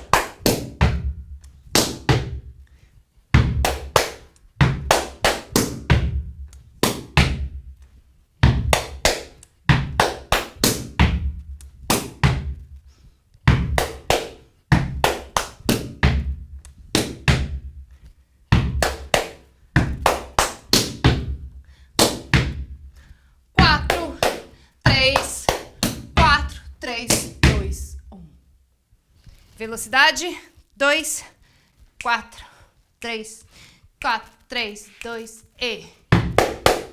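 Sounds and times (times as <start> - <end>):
hands clapping: 0.0 - 0.8, 1.4 - 2.2, 3.5 - 7.9, 8.6 - 12.7, 13.6 - 17.5, 18.6 - 21.3, 22.0 - 22.6, 23.6 - 27.8, 36.2 - 36.9
hand slaps on rubber boots: 13.5 - 17.6.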